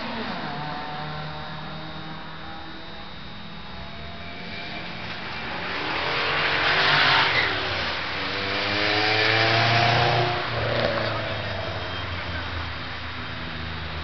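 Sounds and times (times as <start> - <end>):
car accelerating past: 5.7 - 11.4.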